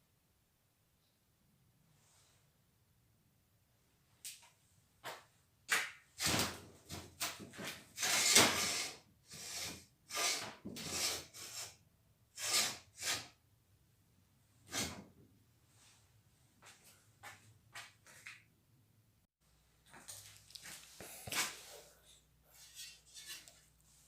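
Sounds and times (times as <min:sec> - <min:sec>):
scraping and rubbing noises: 0:06.2 - 0:11.8, 0:12.4 - 0:13.4, 0:14.6 - 0:15.0, 0:20.0 - 0:24.0.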